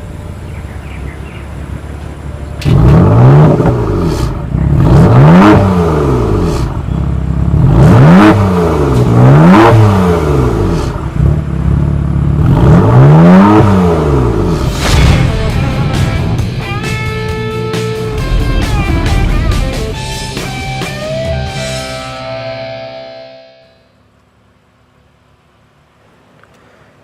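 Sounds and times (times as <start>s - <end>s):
car engine revving: 2.6s - 23.4s.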